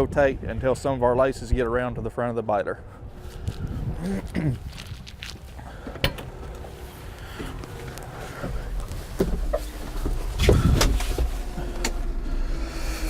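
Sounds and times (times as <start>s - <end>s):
tractor diesel engine running: 4.8s - 13.0s.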